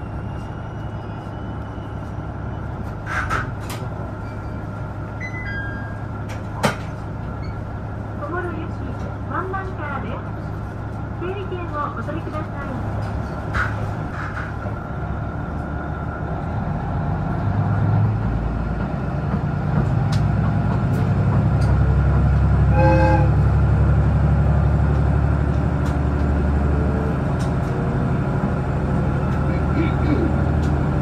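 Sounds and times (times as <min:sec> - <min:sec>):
train rumbling on rails: 0:00.0 - 0:31.0
train horn toot: 0:22.7 - 0:23.5.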